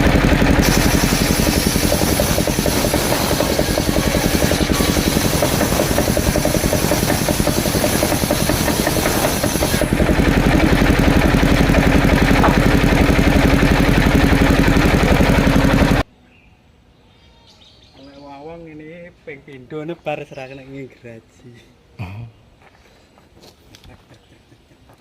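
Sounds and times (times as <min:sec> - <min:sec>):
sawmill engine running: 0:00.0 - 0:16.1.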